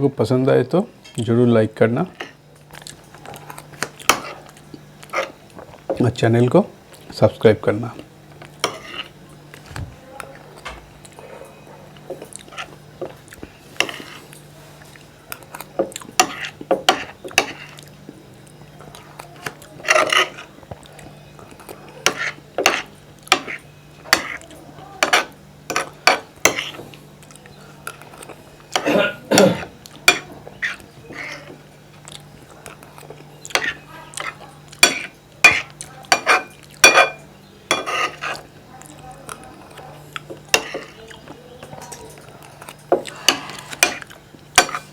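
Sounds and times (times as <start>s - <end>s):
mouth chewing and smacking: 32.0s - 33.5s.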